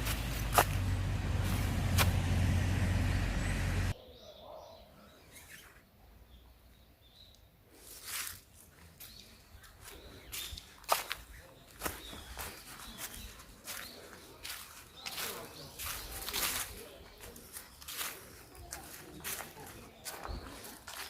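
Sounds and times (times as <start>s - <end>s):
low rumbling outdoor noise: 0.0s - 4.0s
faint bird chirps: 3.4s - 8.3s.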